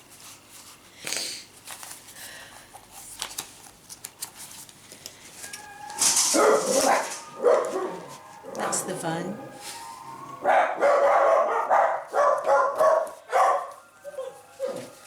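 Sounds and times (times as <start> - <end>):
dogs barking loudly: 6.2 - 15.0.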